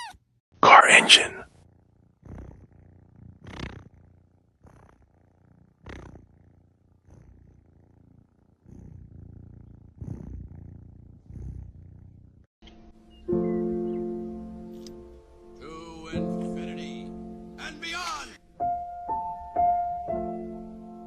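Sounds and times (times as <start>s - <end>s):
cat purring: 1.2s - 12.5s.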